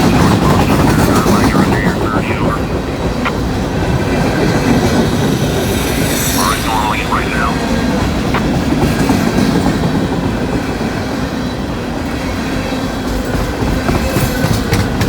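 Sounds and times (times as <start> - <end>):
train wheels rumbling on rail: 7.7 - 15.0.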